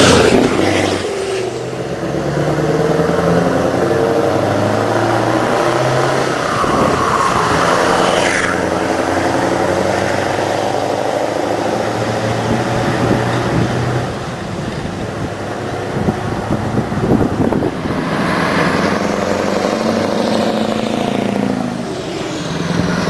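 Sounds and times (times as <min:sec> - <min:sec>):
higher rising sound: 0:00.0 - 0:02.1, 0:17.6 - 0:23.0
diesel truck engine pulling away: 0:00.0 - 0:14.6, 0:17.4 - 0:23.0.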